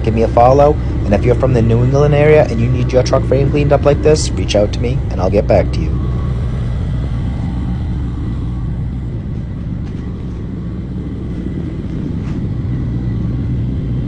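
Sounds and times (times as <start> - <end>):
low mechanical rumble: 0.0 - 14.0.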